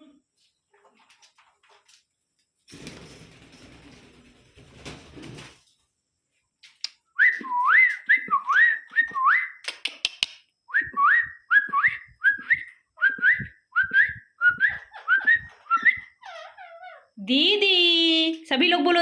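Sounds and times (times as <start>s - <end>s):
parrot clicks: 9.6s - 10.4s
parrot whistling: 10.7s - 17.0s.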